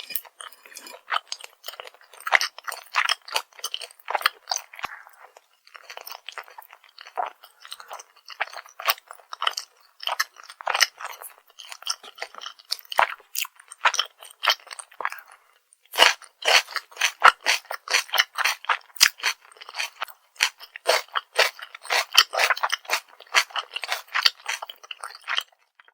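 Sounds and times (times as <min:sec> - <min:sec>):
chewing crunchy fried food: 0:00.0 - 0:25.9.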